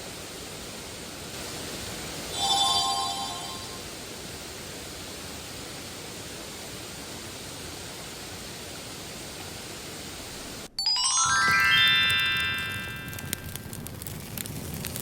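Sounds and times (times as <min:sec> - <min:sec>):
rising bell-like chime sting: 0:02.4 - 0:03.8, 0:10.8 - 0:13.5.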